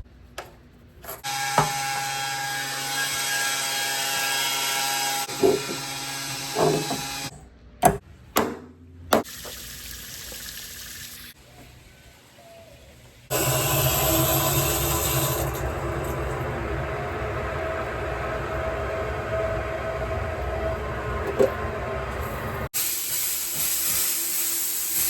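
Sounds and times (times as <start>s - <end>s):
power tool motor running: 13.3s - 16.8s.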